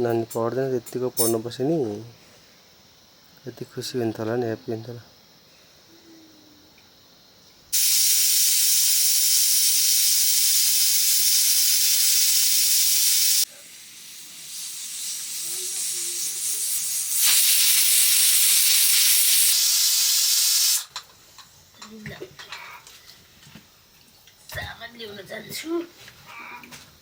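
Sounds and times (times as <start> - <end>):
food sizzling in a hot pan: 7.7 - 21.0.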